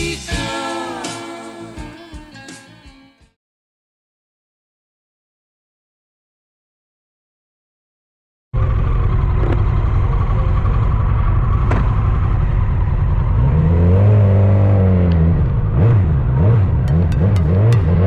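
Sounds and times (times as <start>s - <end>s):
motorcycle engine revving: 8.6s - 18.0s.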